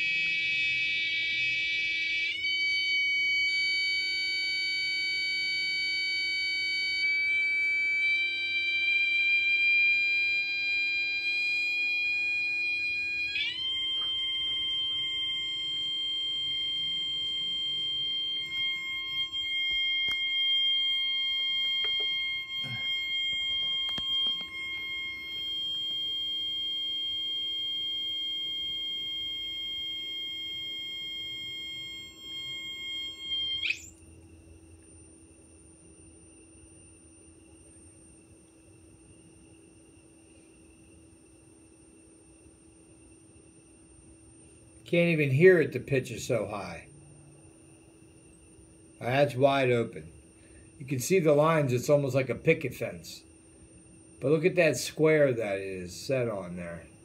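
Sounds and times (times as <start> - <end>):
high-pitched electronic tone: 0.0 - 34.0.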